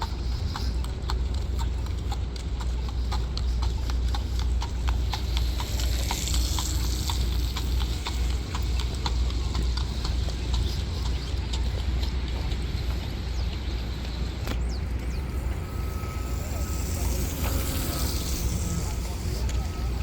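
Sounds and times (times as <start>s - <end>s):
horse hooves on pavement: 0.0s - 20.0s.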